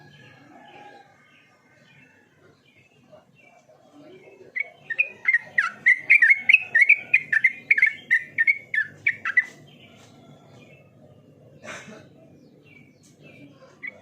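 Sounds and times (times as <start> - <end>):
bulbul singing whistled notes: 4.6 - 9.5.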